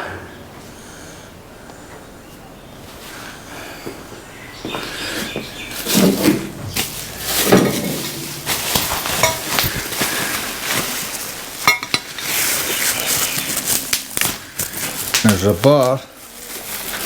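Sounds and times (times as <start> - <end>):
steel parts clattering: 5.8 - 14.9
short metallic rings: 6.8 - 9.8.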